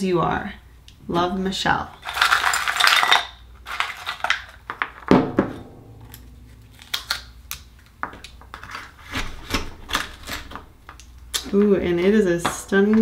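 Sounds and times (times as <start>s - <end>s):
sharp knock: 5.1s - 7.4s.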